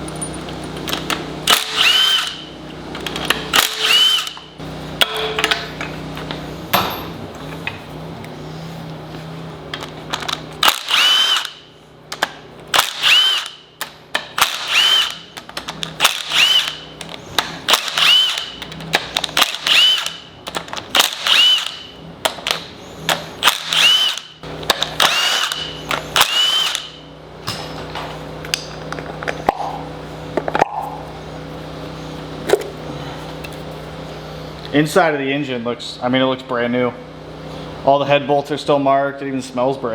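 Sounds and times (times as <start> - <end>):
cordless power tool whining: 0.8 - 4.8, 8.3 - 27.1.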